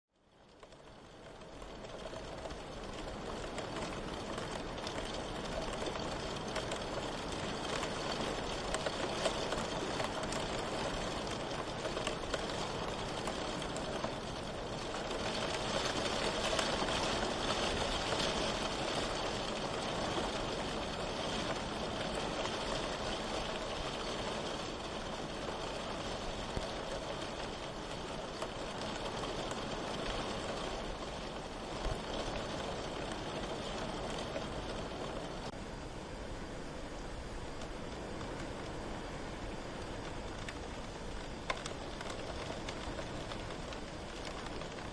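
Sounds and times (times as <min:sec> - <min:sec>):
steady rain falling: 0:00.2 - 0:44.9.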